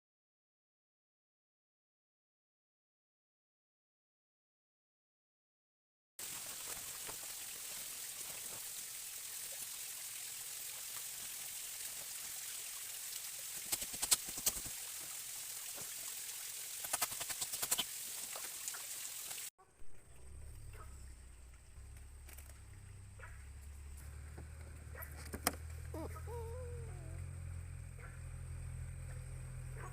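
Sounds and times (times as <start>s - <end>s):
forest stream rushing: 6.2s - 19.5s
sharp clicks: 16.8s - 17.9s.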